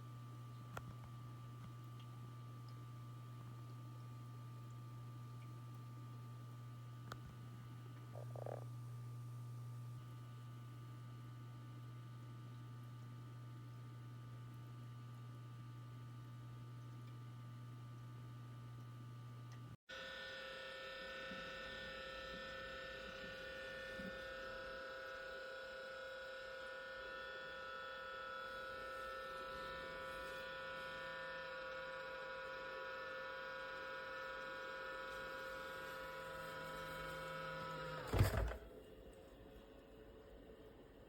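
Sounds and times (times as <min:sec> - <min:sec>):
fan motor humming: 0:24.8 - 0:39.1.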